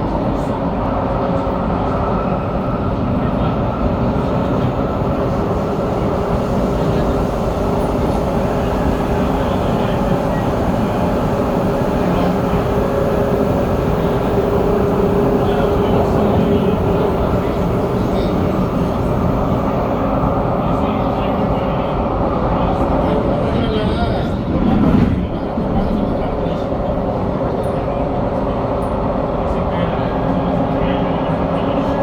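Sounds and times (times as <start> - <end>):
train wheels rumbling: 0.4 - 29.7.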